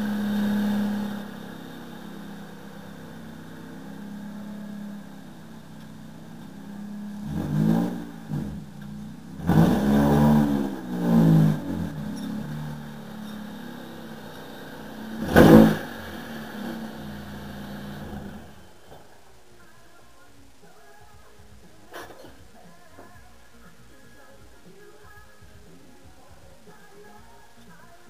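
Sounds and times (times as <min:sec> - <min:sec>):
car engine idling and revving: 0:00.0 - 0:19.4.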